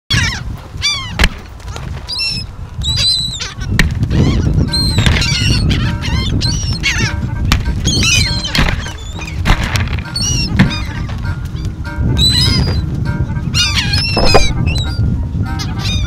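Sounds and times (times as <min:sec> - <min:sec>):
gulls calling: 0:00.1 - 0:16.0
sharp knocks: 0:14.2 - 0:14.6.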